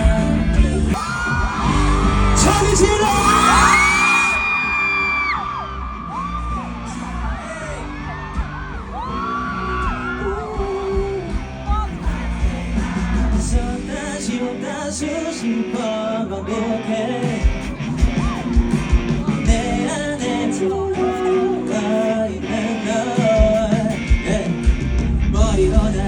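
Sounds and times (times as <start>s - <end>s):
fans screaming and cheering: 0.0s - 26.0s
live band playing: 6.8s - 14.3s, 17.2s - 26.0s.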